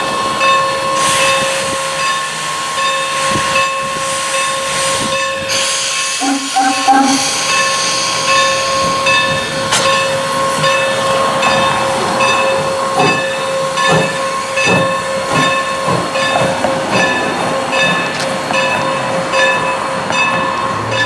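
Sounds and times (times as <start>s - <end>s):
steam locomotive hissing: 0.0s - 21.0s
steady tone: 6.2s - 8.4s.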